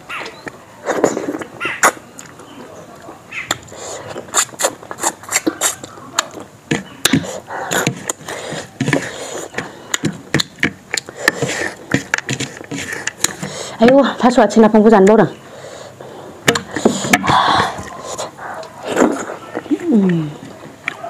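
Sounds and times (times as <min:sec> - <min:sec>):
chewing and lip smacks: 0:00.2 - 0:13.5, 0:17.7 - 0:21.0.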